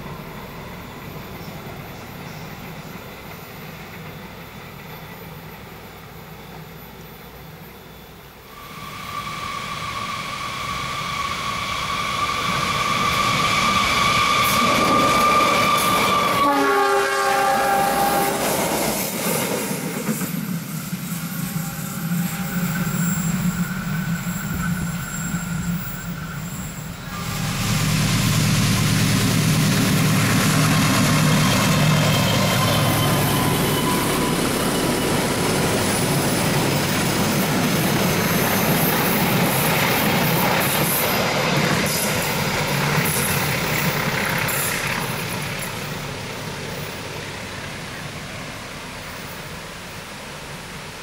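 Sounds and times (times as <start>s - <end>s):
train passing rumble: 0.0s - 51.0s
train horn: 8.5s - 18.8s, 24.1s - 28.8s
locomotive engine drone: 19.8s - 51.0s.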